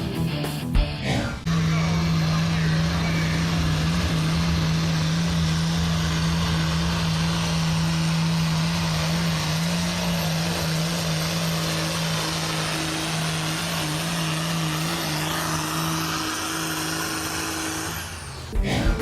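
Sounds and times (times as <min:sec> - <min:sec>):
tractor diesel engine droning: 0:00.0 - 0:19.0.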